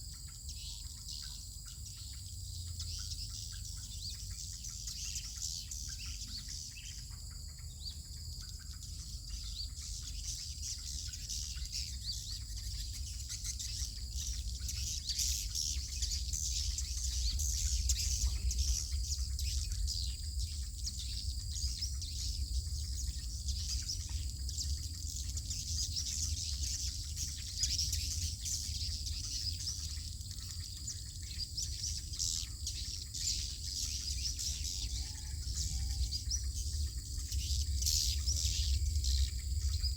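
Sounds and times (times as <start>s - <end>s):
steady low rumble: 2.4s - 39.9s.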